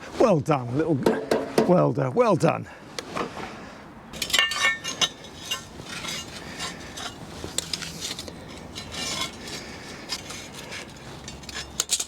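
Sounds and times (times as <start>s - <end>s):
metal pieces clinking and rattling: 4.2s - 9.4s.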